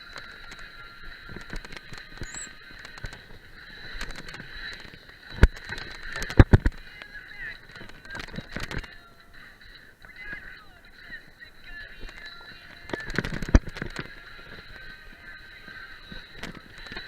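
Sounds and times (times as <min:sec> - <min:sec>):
mountain bike rattling: 0:00.0 - 0:17.0
steady high-pitched tone: 0:02.2 - 0:02.6.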